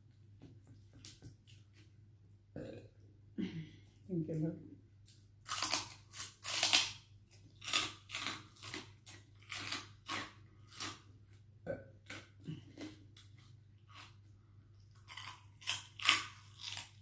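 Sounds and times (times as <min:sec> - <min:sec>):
crunchy chewing: 0:05.0 - 0:11.2, 0:12.0 - 0:17.0.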